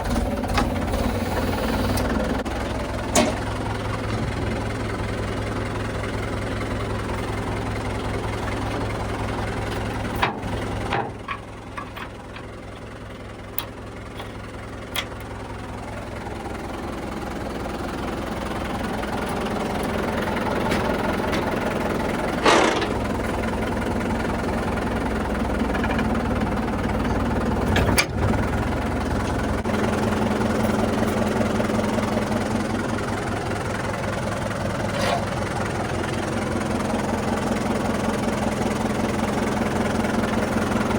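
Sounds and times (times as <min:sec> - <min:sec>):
diesel engine running: 0:00.0 - 0:40.9
sharp metal clanks and knocks: 0:10.2 - 0:12.5, 0:22.4 - 0:23.1.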